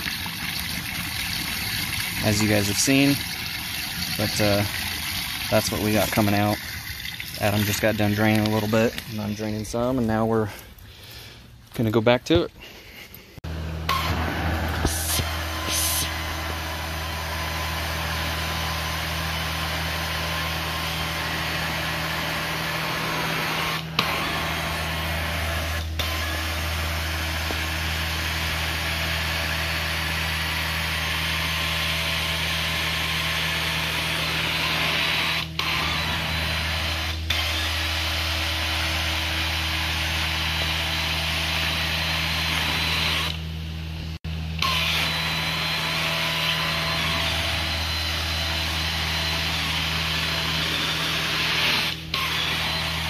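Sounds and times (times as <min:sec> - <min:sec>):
carpet cleaning machine hum: 0:12.6 - 0:53.0
suction wand hissing: 0:14.8 - 0:16.3.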